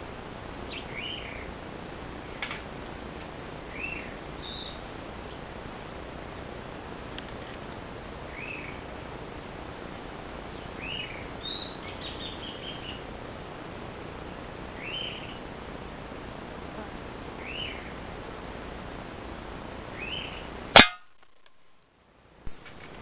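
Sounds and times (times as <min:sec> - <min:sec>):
outdoor background noise: 0:00.0 - 0:23.0
small bird chirping: 0:00.6 - 0:01.5, 0:03.7 - 0:05.4, 0:08.3 - 0:08.8, 0:10.5 - 0:13.1, 0:14.8 - 0:16.4, 0:17.4 - 0:18.0, 0:19.9 - 0:20.5.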